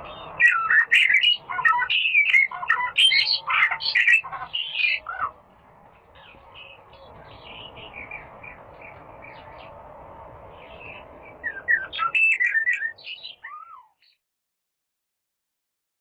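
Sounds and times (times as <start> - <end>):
small songbird chirping: 0.0 - 5.3, 5.9 - 14.2.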